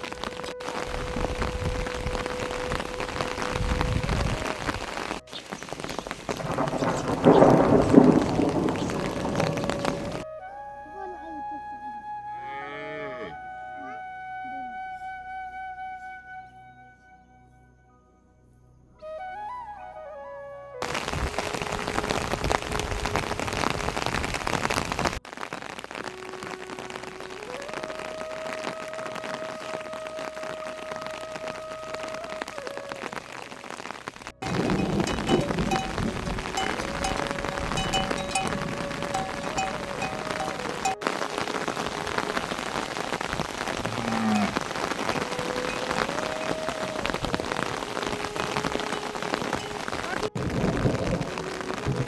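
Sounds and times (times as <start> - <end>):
steady rain falling: 0.0 - 10.4, 20.8 - 52.0
flute melody: 0.0 - 18.2, 19.0 - 23.1, 26.0 - 43.8, 44.4 - 52.0
low rumble of thunder: 0.8 - 10.3, 34.3 - 48.8, 49.6 - 52.0.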